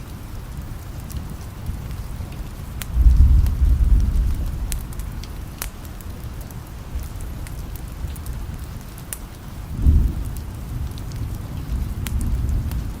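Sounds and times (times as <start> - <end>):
steady rain: 0.0 - 13.0
low thunder rumbling: 1.2 - 5.6, 9.6 - 13.0.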